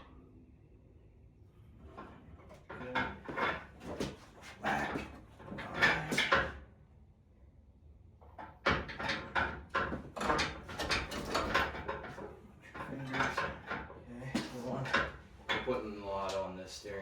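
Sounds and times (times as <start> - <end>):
metal clunks and knocks: 1.9 - 6.6, 8.4 - 16.4.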